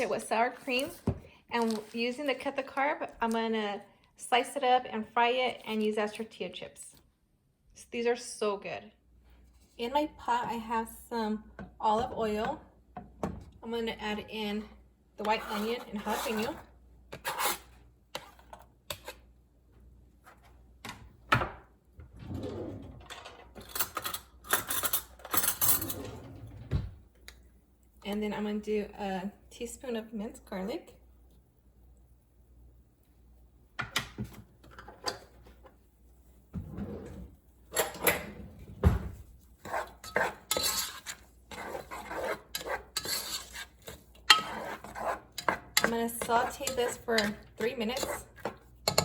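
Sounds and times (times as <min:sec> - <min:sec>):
utensil scraping a pot: 0:15.2 - 0:19.3, 0:39.6 - 0:49.0.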